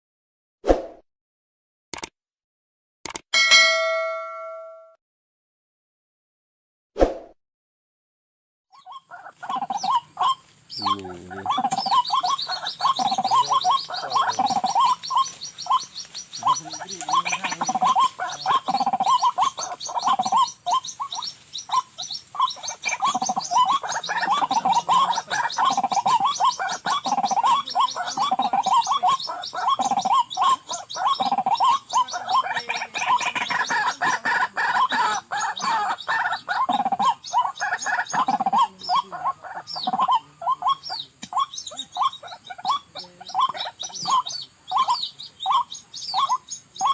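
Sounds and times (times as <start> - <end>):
birds croaking and gurgling: 8.7 - 46.9.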